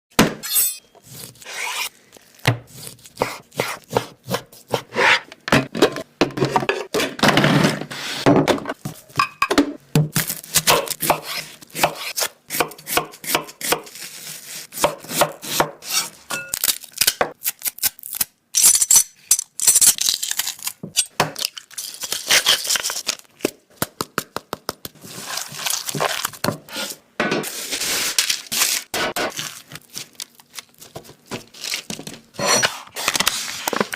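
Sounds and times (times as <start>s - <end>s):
blade scraping board: 1.4s - 1.9s, 4.8s - 5.3s, 32.4s - 33.9s.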